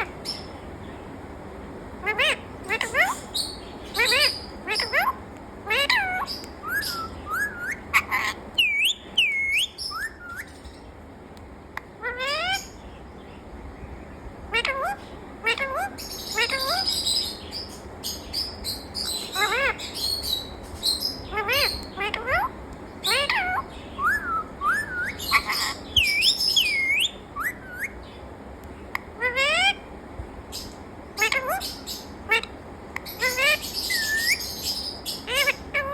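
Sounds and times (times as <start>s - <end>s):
parrot whistling: 2.0s - 10.6s, 23.1s - 28.0s, 33.2s - 35.9s.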